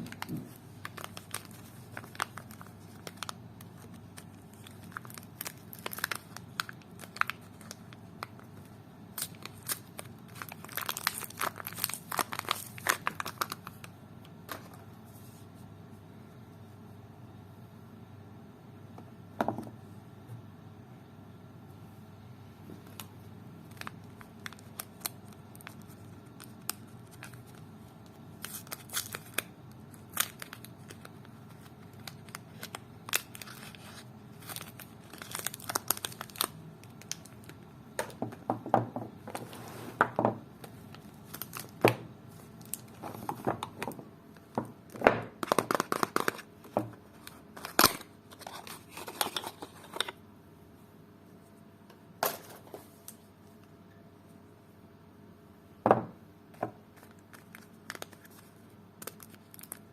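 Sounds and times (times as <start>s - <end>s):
soap wrappers crinkling and tearing: 0.0s - 13.9s, 22.8s - 38.2s, 40.6s - 50.2s, 56.9s - 59.9s.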